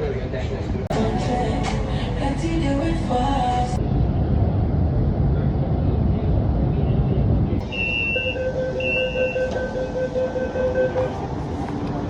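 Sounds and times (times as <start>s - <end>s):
electric train rumbling: 0.0s - 12.0s
electronic warning signal: 7.6s - 11.2s.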